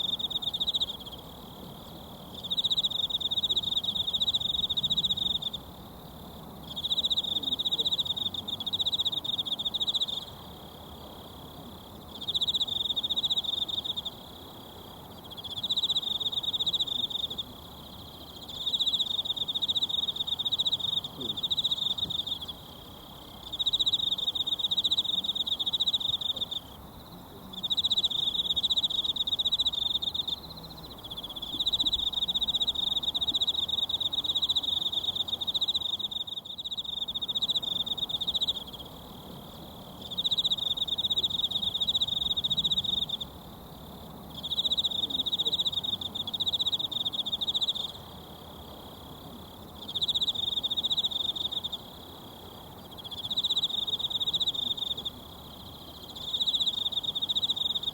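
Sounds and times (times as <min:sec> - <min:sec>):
insect trilling: 0:12.1 - 0:57.9.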